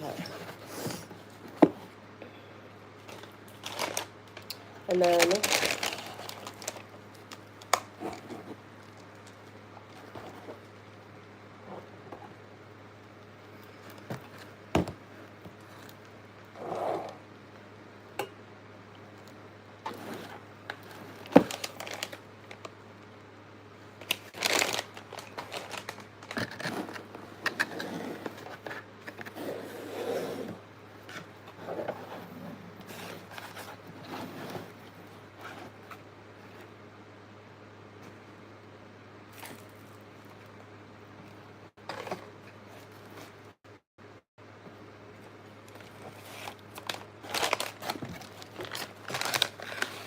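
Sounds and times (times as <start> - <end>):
food packaging crinkling: 3.0 - 7.9, 20.7 - 22.7, 24.0 - 27.0, 45.7 - 50.0.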